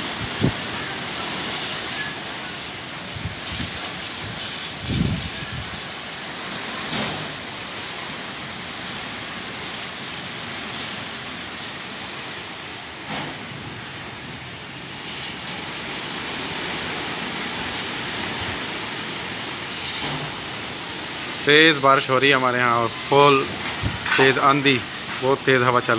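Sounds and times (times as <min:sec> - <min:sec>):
heavy rain pouring: 0:00.0 - 0:25.9
loud rain hits: 0:00.0 - 0:25.9.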